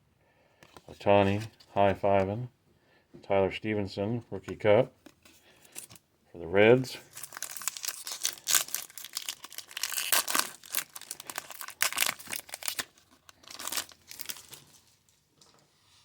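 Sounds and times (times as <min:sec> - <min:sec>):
foil wrapper crinkling and tearing: 0:07.0 - 0:15.0.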